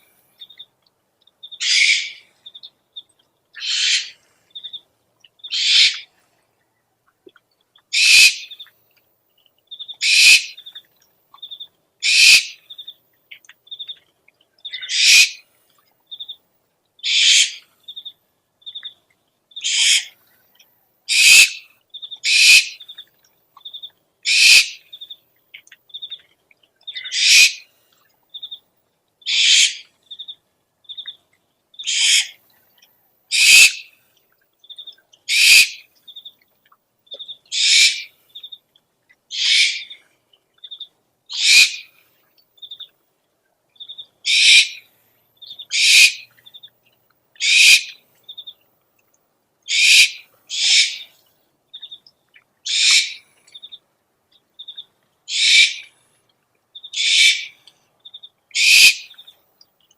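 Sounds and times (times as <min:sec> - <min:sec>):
owl screeching: 0:01.6 - 0:02.2, 0:03.6 - 0:04.2, 0:05.5 - 0:06.1, 0:08.0 - 0:08.5, 0:10.0 - 0:10.6, 0:12.0 - 0:12.6, 0:14.8 - 0:15.4, 0:17.0 - 0:17.6, 0:19.6 - 0:20.2, 0:21.1 - 0:21.6, 0:22.2 - 0:22.8, 0:24.3 - 0:24.8, 0:27.0 - 0:27.6, 0:29.3 - 0:29.8, 0:31.9 - 0:32.4, 0:33.3 - 0:33.8, 0:35.3 - 0:35.8, 0:37.5 - 0:38.1, 0:39.3 - 0:40.0, 0:41.4 - 0:41.9, 0:44.3 - 0:44.8, 0:45.7 - 0:46.2, 0:47.4 - 0:48.0, 0:49.7 - 0:51.1, 0:52.7 - 0:53.2, 0:55.3 - 0:55.9, 0:56.9 - 0:57.6, 0:58.6 - 0:59.1.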